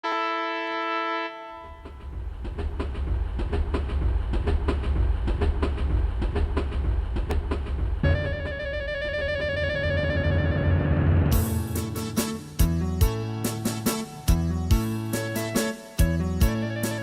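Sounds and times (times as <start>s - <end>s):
train horn: 0.0s - 2.2s
train rumbling: 1.6s - 15.0s
wheels clacking over rail joints: 1.7s - 8.0s.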